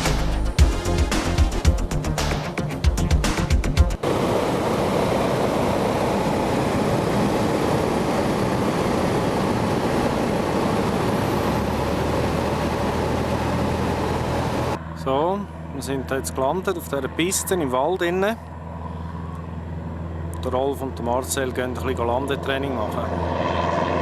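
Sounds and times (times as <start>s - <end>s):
music: 0.0s - 4.0s
small airplane engine running: 0.0s - 24.0s
rushing airflow: 3.9s - 14.8s.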